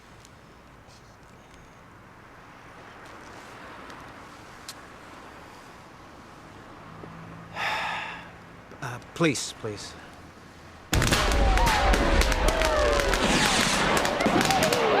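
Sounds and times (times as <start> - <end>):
car engine and tyres rumbling: 0.0 - 10.9.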